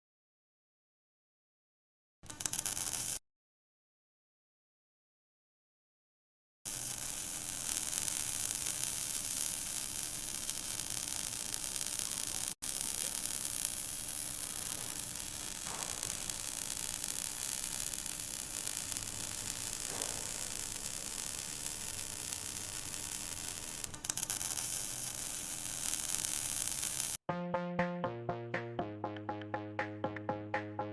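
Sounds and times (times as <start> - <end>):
welding arc crackling: 2.3 - 3.2, 6.7 - 27.2.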